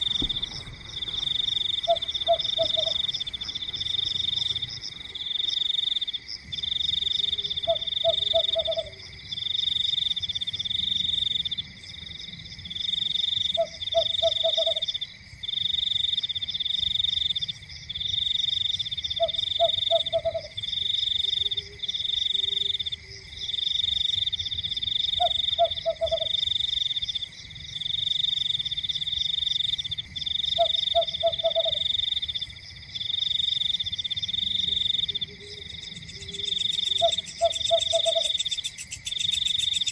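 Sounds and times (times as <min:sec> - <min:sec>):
frog croaking low: 0:00.0 - 0:10.0, 0:24.4 - 0:39.9
steady high insect whine: 0:00.0 - 0:39.9.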